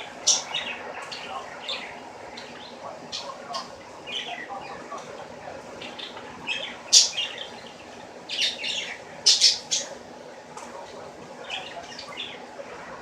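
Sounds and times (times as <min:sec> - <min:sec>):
bird chirping: 0:00.0 - 0:04.8, 0:05.8 - 0:10.0.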